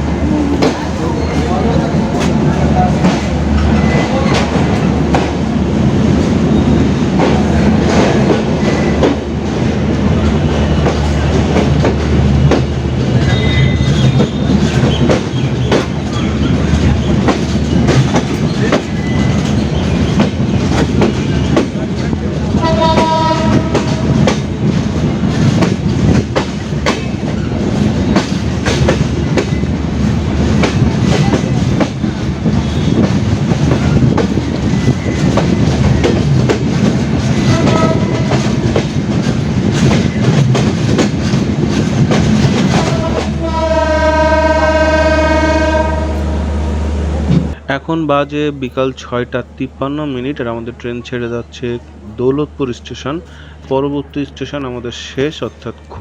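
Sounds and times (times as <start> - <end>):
train rumbling: 0.0 - 56.0
wheels clicking over rail joints: 7.2 - 43.6.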